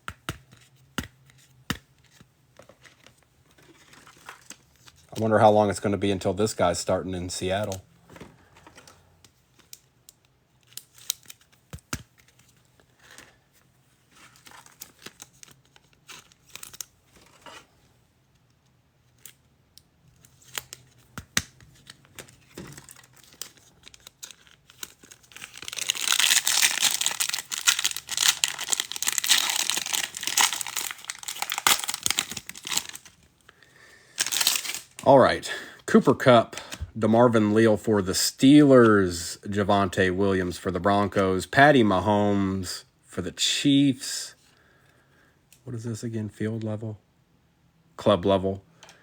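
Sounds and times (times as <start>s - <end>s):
cards clicking and rustling: 0.0s - 5.3s, 7.6s - 13.4s, 20.1s - 33.2s, 34.2s - 35.0s
wrapper tearing and crinkling: 21.8s - 33.2s, 34.2s - 35.1s.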